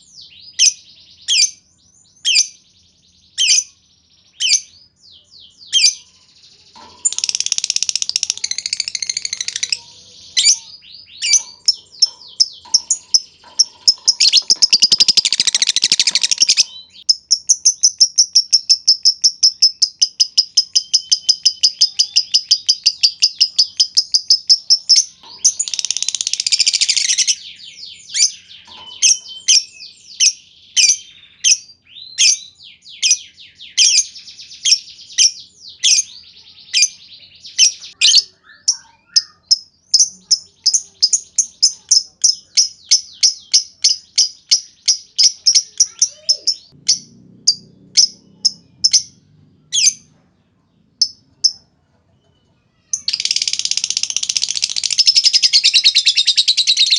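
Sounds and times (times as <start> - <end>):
birds chattering and chirping: 0.0 - 56.9
bird trilling: 6.8 - 32.0, 36.8 - 50.1.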